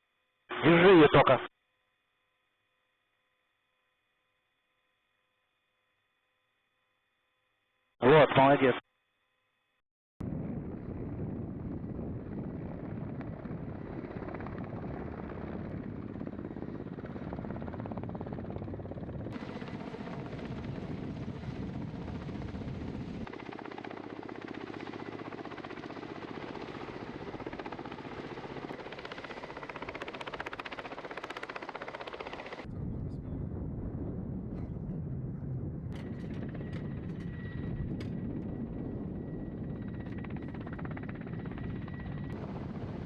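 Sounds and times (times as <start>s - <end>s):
helicopter rotor and turbine: 10.2s - 43.0s.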